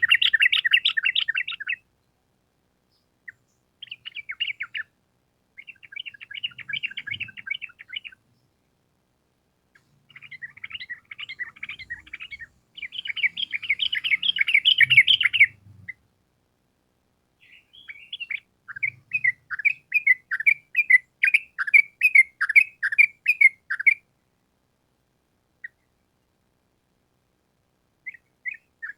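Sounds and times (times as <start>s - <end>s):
bulbul singing: 0.0s - 1.8s, 2.9s - 4.9s, 5.6s - 8.5s, 9.8s - 16.0s, 17.4s - 24.0s.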